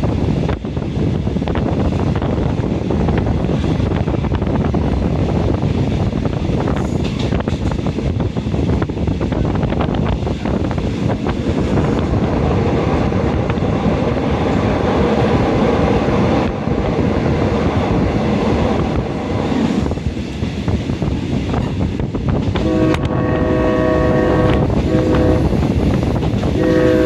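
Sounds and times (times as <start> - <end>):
train rumbling along rails: 0.0 - 27.0
train horn chord: 22.6 - 25.6, 26.6 - 27.0.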